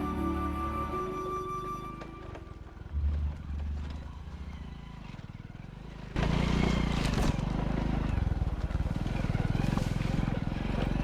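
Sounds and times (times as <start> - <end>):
motorcycle engine running: 2.3 - 11.0.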